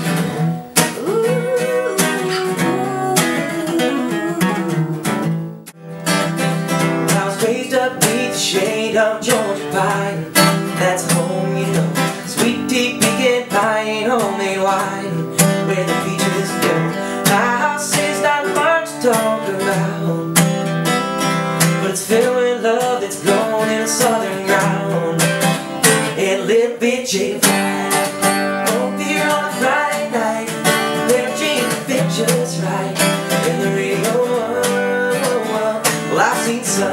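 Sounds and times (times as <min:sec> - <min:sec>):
acoustic guitar strumming: 0:00.0 - 0:36.9
wavering melody line: 0:00.4 - 0:05.6.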